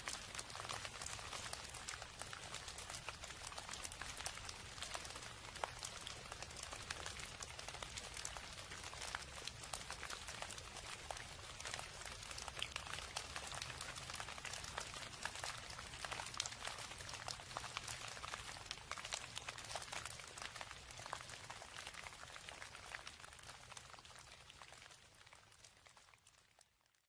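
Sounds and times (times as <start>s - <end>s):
rain pattering: 0.0s - 27.0s.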